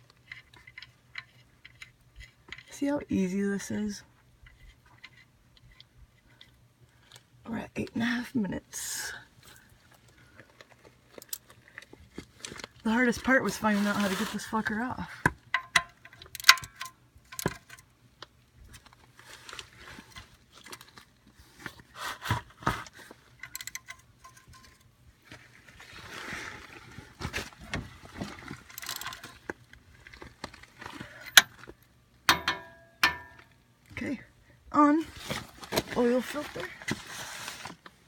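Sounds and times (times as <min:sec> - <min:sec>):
rustling: 0:09.4 - 0:14.8, 0:24.2 - 0:31.8, 0:35.0 - 0:38.0
tools and metal parts clinking: 0:15.5 - 0:17.8, 0:23.3 - 0:24.9, 0:28.6 - 0:29.4, 0:32.3 - 0:33.5.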